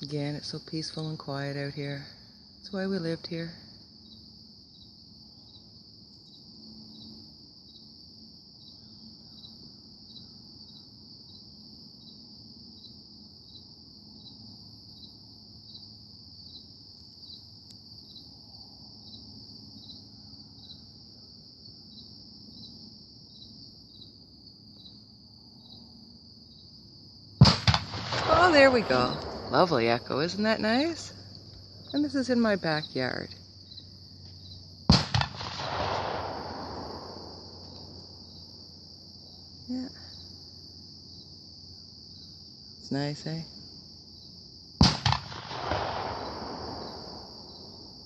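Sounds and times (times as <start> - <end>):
insect trilling: 28.0 - 34.7, 36.2 - 40.7.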